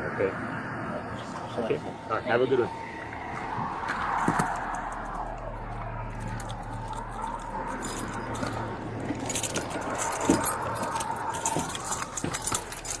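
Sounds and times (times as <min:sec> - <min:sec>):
keys and metal gear jangling: 0:06.2 - 0:13.0.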